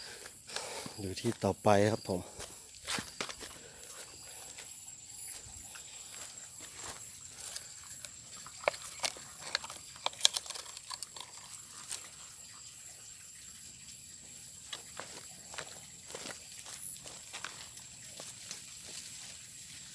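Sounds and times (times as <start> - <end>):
footsteps in rice paddy: 0.0 - 1.5, 2.2 - 9.9, 14.6 - 19.9.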